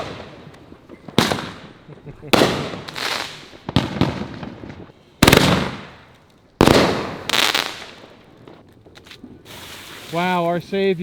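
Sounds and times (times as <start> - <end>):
firework bangs: 0.0 - 8.6
crackling hiss: 0.0 - 11.0.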